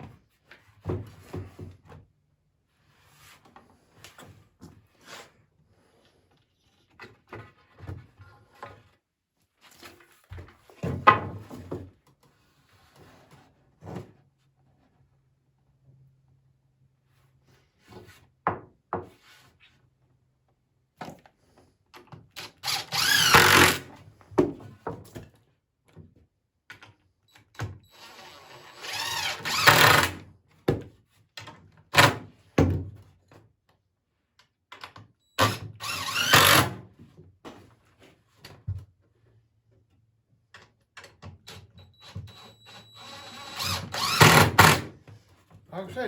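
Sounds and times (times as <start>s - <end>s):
power drill driving screws: 22.4s - 23.9s, 27.8s - 30.2s, 35.4s - 36.8s, 42.0s - 44.9s.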